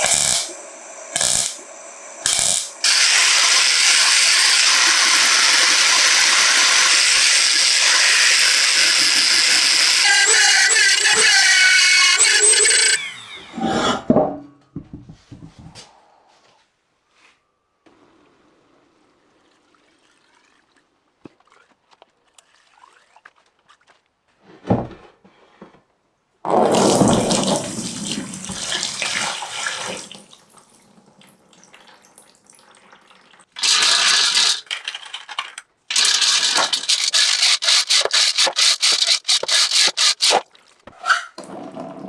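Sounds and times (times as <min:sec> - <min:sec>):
water spraying in hissing bursts: 0:00.0 - 0:11.2, 0:26.5 - 0:30.3, 0:35.9 - 0:40.5.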